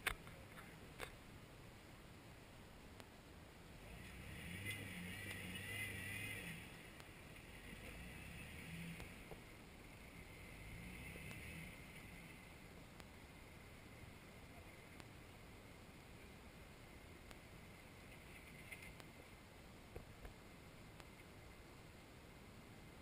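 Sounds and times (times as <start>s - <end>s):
faint engine revving: 3.8s - 19.4s.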